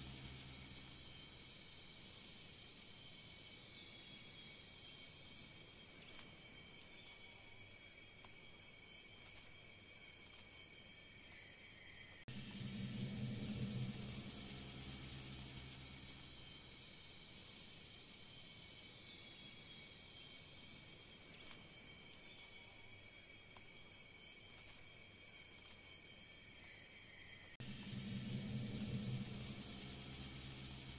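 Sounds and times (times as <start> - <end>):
high pulsing buzz with low hum: 0.0 - 2.4, 12.3 - 18.2, 27.6 - 30.9
insects trilling: 0.0 - 30.9.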